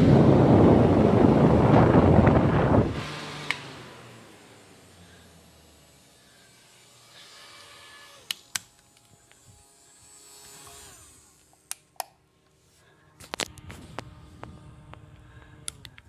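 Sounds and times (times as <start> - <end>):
handheld electric fan buzzing: 0.0 - 12.2, 13.1 - 16.0
sharp clicks: 15.6 - 16.0.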